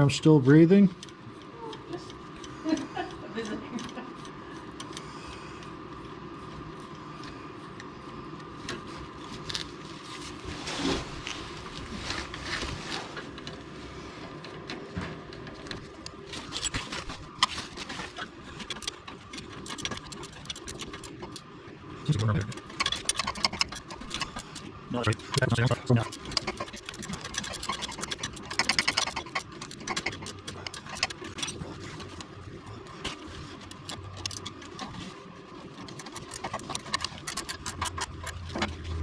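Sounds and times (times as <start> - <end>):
steady hum: 0.0 - 39.0
metal tools clicking and scraping: 16.4 - 17.5, 18.2 - 21.5, 22.1 - 32.3, 33.5 - 34.8, 35.8 - 38.9.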